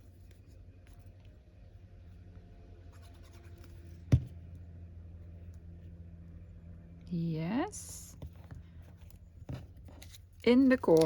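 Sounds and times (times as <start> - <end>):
steady low hum: 0.0 - 11.0
paper rustling and scratching: 8.7 - 11.0.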